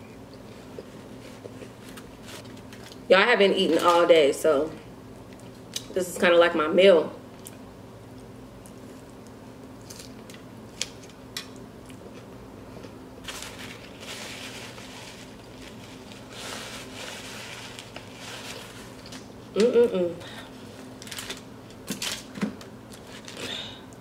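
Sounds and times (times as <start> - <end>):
low steady hum: 0.0 - 24.0
paper napkin rustling: 13.2 - 19.1.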